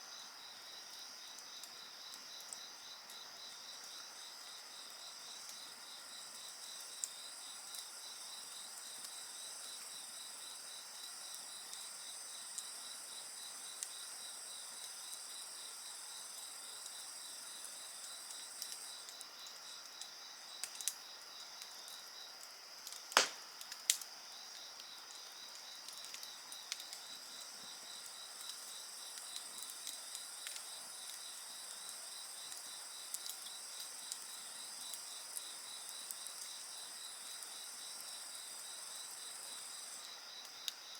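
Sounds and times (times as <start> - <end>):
insects chirping: 0.1 - 40.9
sharp pops from fire: 22.8 - 24.1
wood fire crackling: 22.8 - 35.4.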